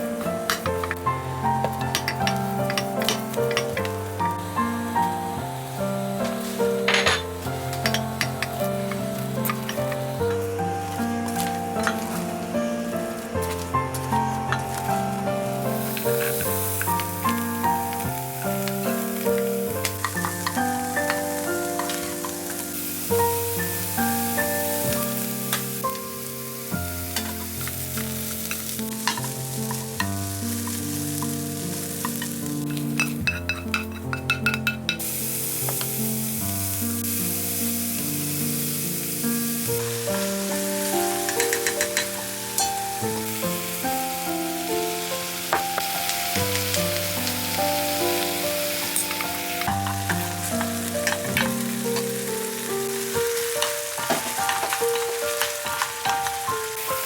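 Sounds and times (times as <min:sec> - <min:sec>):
background music: 0:00.0 - 0:57.0
food sizzling in a pan: 0:00.0 - 0:57.0
utensil clicking against pan: 0:41.2 - 0:42.8.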